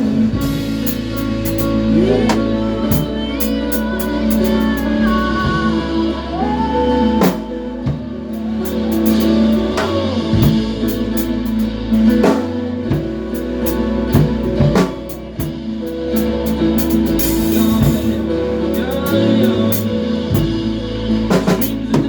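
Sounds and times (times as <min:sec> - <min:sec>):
drum kit hits: 0:00.0 - 0:05.8, 0:07.2 - 0:22.0
band playing instrumental: 0:07.2 - 0:22.0.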